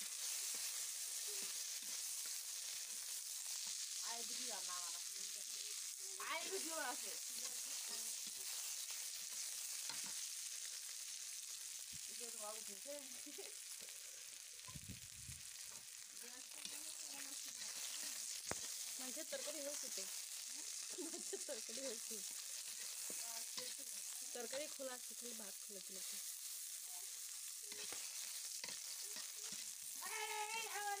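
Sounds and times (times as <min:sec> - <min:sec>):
chilies sizzling in hot oil: 0:00.0 - 0:31.0
metal spatula scraping pan: 0:16.6 - 0:19.6, 0:27.7 - 0:29.8.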